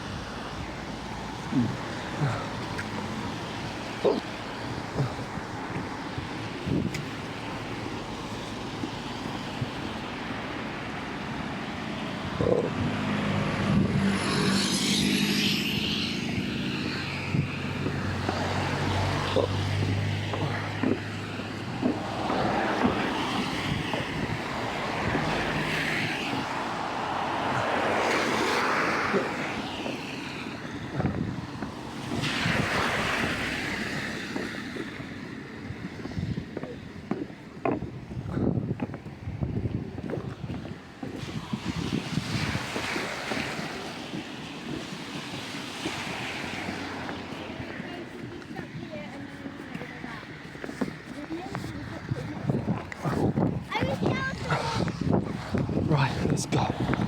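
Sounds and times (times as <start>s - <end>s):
vehicle engine humming: 0.0s - 32.1s
rushing floodwater: 0.0s - 57.0s
wind noise on microphone: 3.3s - 10.6s, 12.1s - 28.1s, 30.4s - 57.0s.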